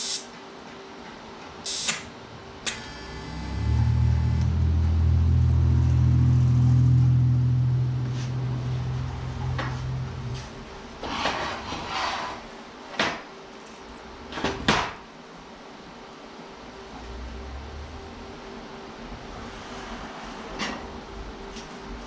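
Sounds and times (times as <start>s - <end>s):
electric motor humming: 2.8s - 10.9s
metal scrape: 7.9s - 12.5s.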